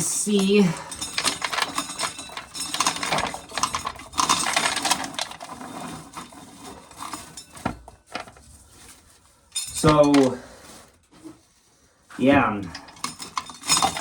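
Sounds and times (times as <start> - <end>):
corn kernels clattering: 0.0 - 8.9, 13.0 - 14.0.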